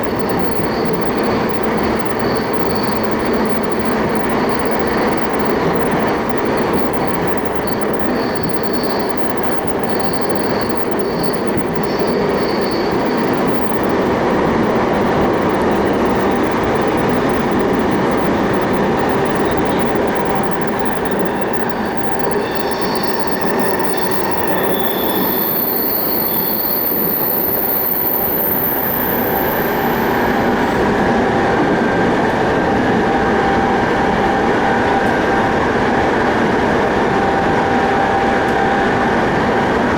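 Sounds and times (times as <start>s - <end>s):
high-pitched wheel squeal: 0.0s - 30.8s
thin high whine: 0.0s - 39.0s
train wheels rumbling on rail: 0.0s - 39.9s.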